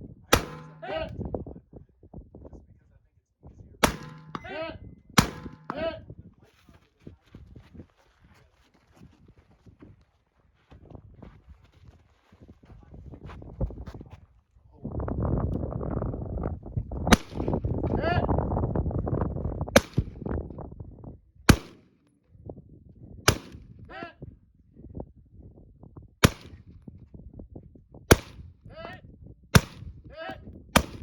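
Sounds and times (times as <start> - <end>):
rifle shots: 0.3 - 1.2, 3.8 - 6.0, 17.1 - 17.5, 21.5 - 21.8, 23.3 - 23.6, 26.2 - 26.6, 28.1 - 28.4, 29.6 - 29.8, 30.8 - 31.0.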